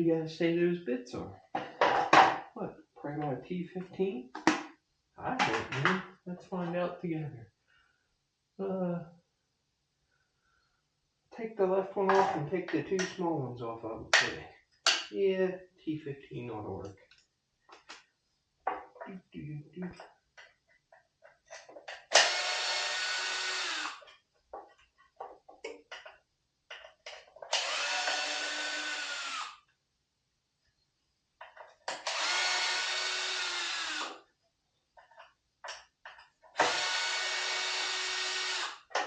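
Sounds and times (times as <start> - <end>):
drill motor whining: 22.1 - 24.0, 27.5 - 29.6, 31.9 - 34.2, 36.6 - 38.9.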